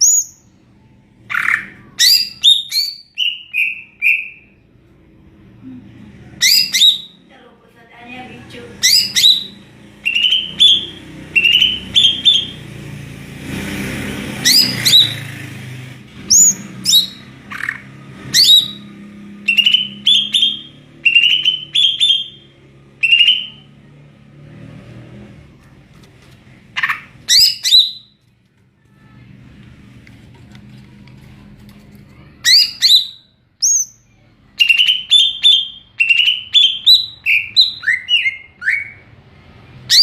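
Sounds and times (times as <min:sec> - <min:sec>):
bird singing whistled notes: 0:08.8 - 0:12.6, 0:18.4 - 0:22.4, 0:23.0 - 0:23.6, 0:34.6 - 0:39.0.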